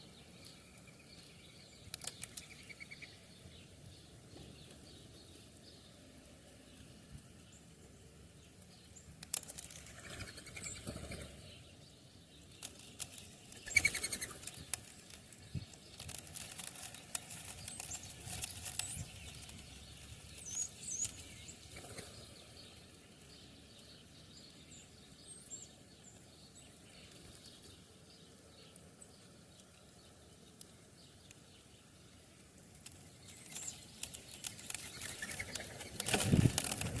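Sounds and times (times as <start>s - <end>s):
bird wings flapping: 9.8s - 11.4s, 13.6s - 14.6s, 33.4s - 37.0s.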